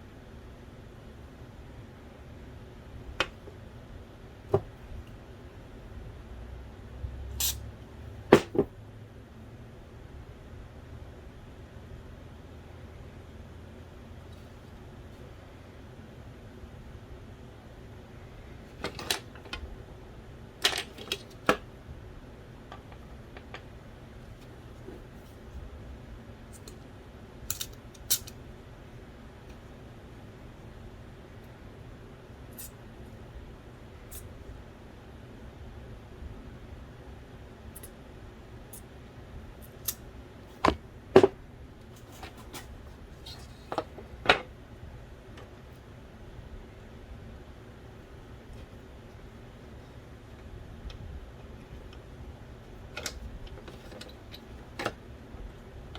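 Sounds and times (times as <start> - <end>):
small parts clicking and knocking: 27.4 - 28.4.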